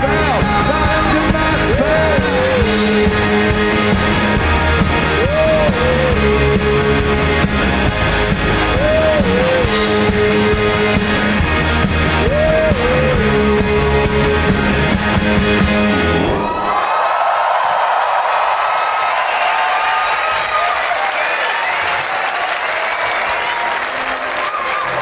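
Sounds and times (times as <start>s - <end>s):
live rock band playing: 0.0s - 16.6s
lead guitar line: 0.0s - 16.7s.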